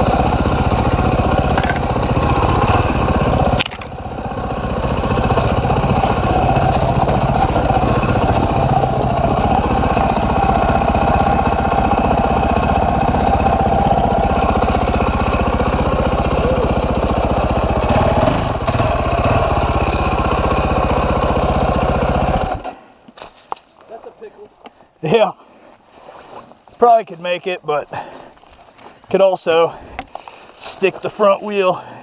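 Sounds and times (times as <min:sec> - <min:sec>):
dirt bike engine running: 0:00.0 - 0:23.3.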